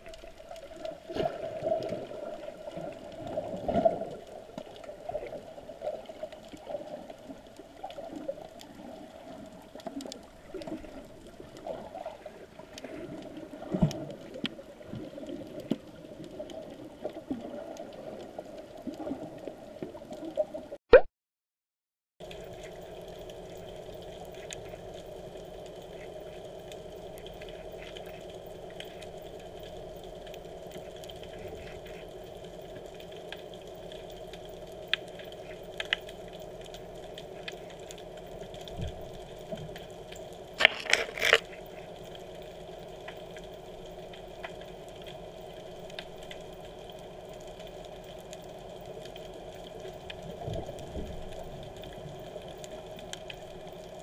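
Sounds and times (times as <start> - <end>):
muffled underwater hum: 0.0 - 20.8, 22.2 - 54.0
sharp underwater clicks: 22.3 - 54.0.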